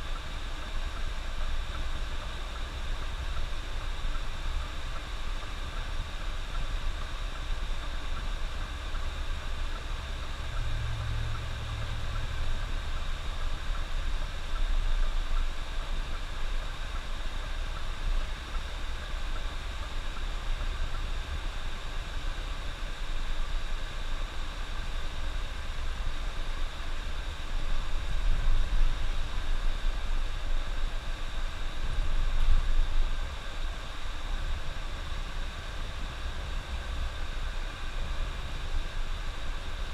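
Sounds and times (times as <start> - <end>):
bus engine and road rumble: 3.0 - 22.4.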